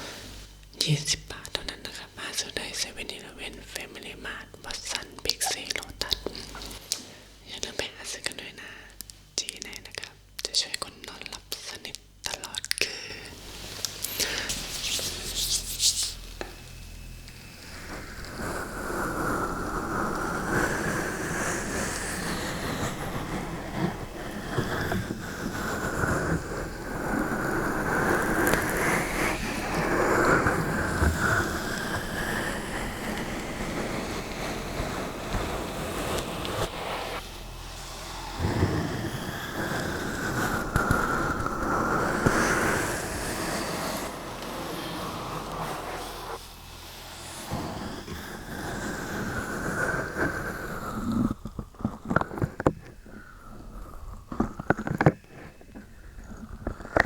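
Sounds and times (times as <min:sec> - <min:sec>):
scratching on microphone: 0:13.5 - 0:16.3.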